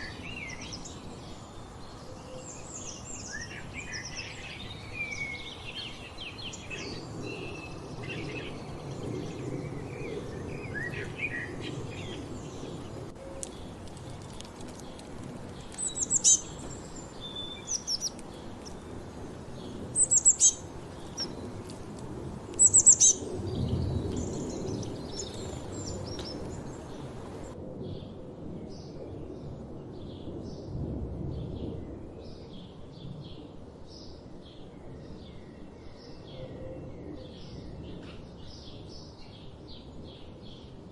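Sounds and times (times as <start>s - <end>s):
birds singing and calling: 0.0s - 27.6s
low outdoor rumble: 5.4s - 27.8s
sharp high bird chirps: 20.0s - 20.6s, 22.6s - 23.3s.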